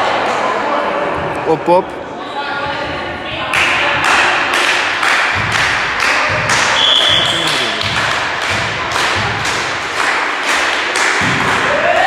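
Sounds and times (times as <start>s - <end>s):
din of a busy hall: 0.0s - 12.0s
steady thudding beat: 5.2s - 9.9s.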